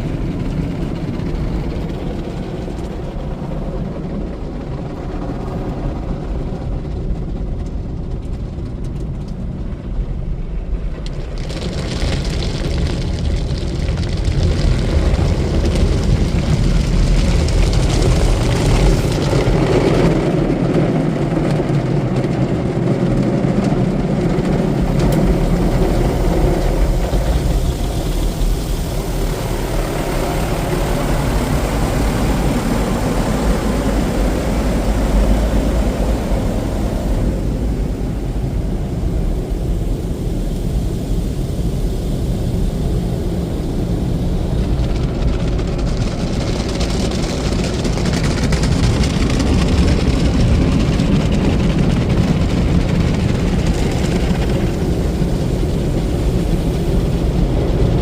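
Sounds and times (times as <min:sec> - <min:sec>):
car wash machinery rumbling: 0:00.0 - 0:58.0
water hissing: 0:24.6 - 0:44.3.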